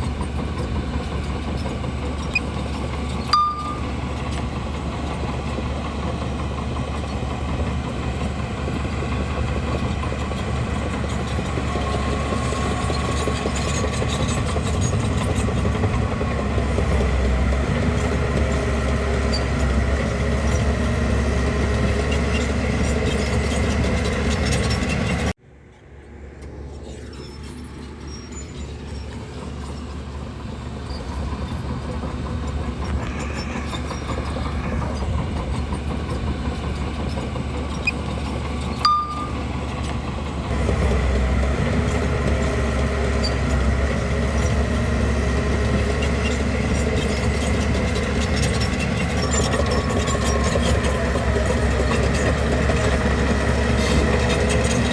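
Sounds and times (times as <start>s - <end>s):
bulldozer diesel engine running: 0.0s - 54.9s
light metallic clinks: 38.8s - 39.5s.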